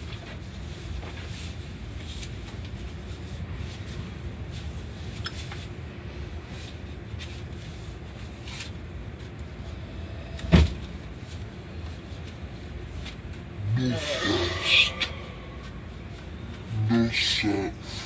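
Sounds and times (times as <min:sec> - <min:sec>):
low rumble: 0:13.5 - 0:17.8.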